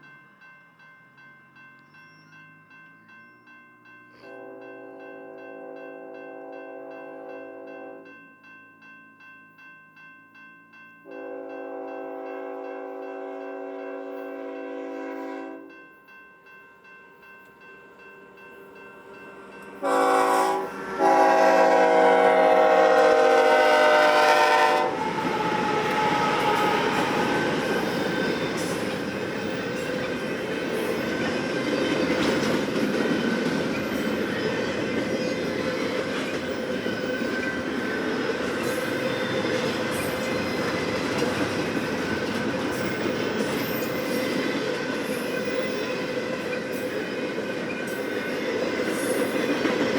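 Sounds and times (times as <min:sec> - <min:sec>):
locomotive horn blasts: 0:04.2 - 0:08.1, 0:11.1 - 0:15.7, 0:19.8 - 0:27.5
train wheels rumbling on rails: 0:17.6 - 0:49.9.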